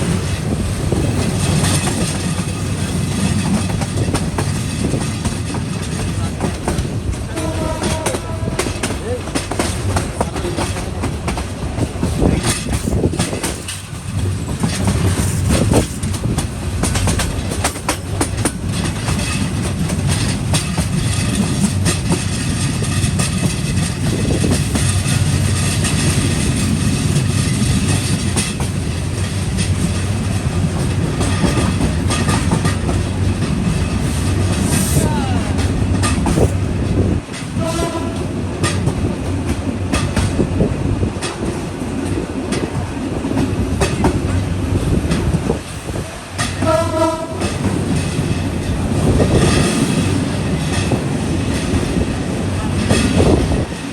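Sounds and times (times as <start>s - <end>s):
train rumbling: 0.0s - 53.9s
wheels clattering over rail joints: 0.0s - 53.9s
train horn: 7.3s - 9.0s, 37.6s - 38.4s, 46.5s - 47.6s.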